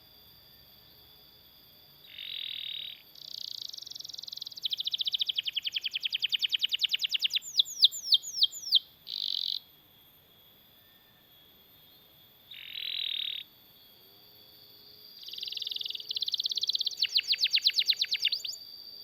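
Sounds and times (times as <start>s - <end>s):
canary singing: 2.1s - 9.6s, 12.5s - 13.5s, 15.2s - 18.6s.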